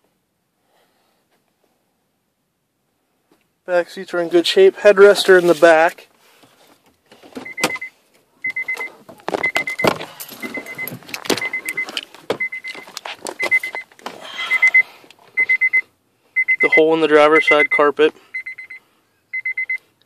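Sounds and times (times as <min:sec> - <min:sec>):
car warning chime beeping: 0:07.4 - 0:19.9
knocks and rustling in car cabin: 0:08.7 - 0:14.2.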